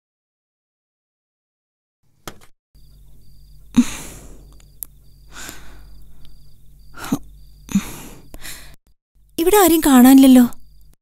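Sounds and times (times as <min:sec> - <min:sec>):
crickets chirping: 0:02.8 - 0:11.0.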